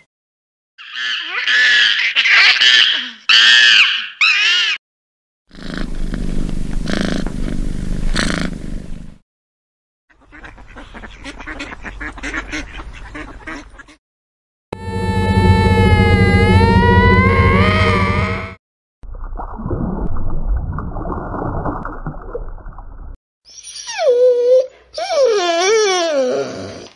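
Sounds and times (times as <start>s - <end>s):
high-pitched wavering animal calls: 14.8s - 18.6s, 23.5s - 26.7s.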